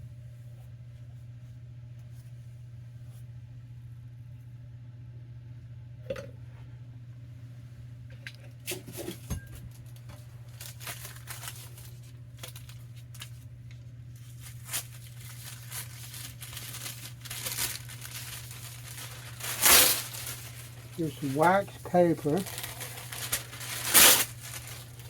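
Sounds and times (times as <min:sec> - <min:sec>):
steady low hum: 0:00.0 - 0:25.0
paper crinkling and rustling: 0:08.7 - 0:25.0.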